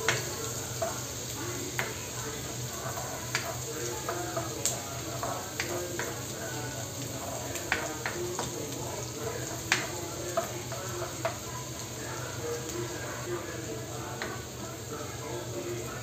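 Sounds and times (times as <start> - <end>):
spatula tapping and scraping pan: 0.0 - 11.8, 14.2 - 14.4
onion and garlic sizzling in oil: 0.0 - 16.0.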